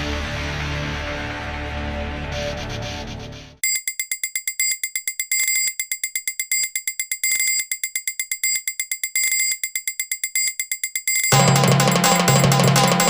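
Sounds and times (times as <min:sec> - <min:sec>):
bell ringing rapidly: 0:03.6 - 0:13.0.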